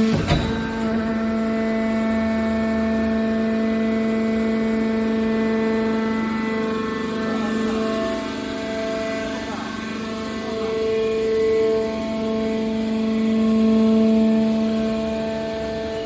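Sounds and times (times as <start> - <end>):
hydraulic power unit humming: 0.0 - 16.0.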